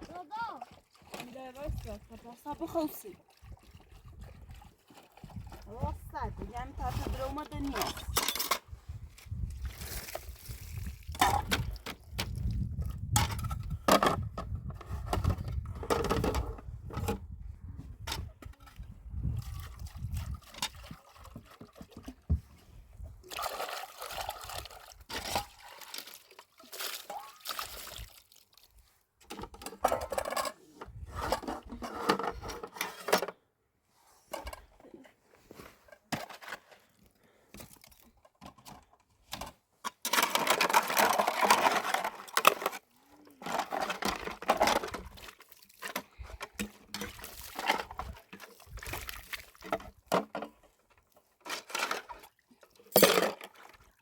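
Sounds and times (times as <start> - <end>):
water pouring and splashing: 0.0 - 14.1, 18.1 - 30.5, 40.1 - 54.0
objects knocking and clattering: 6.3 - 8.7, 11.1 - 17.4, 29.2 - 33.4, 38.2 - 42.8, 43.4 - 45.2, 49.6 - 50.7, 52.9 - 53.6.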